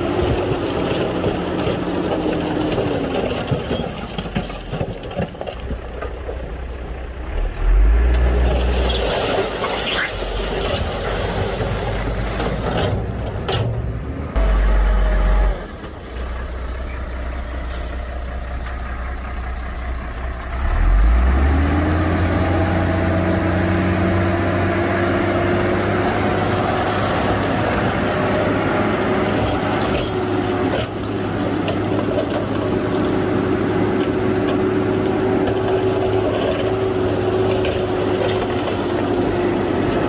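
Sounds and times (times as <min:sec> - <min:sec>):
heavy diesel engine revving: 0:13.9 - 0:16.0, 0:20.2 - 0:40.0.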